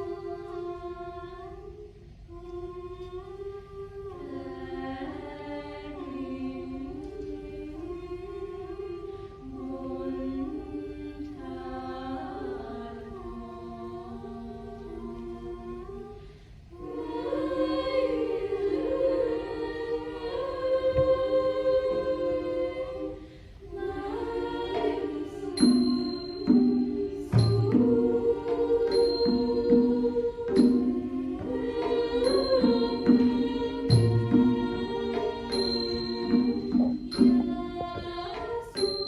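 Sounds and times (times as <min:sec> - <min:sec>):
choir singing in harmony: 0:00.0 - 0:39.0.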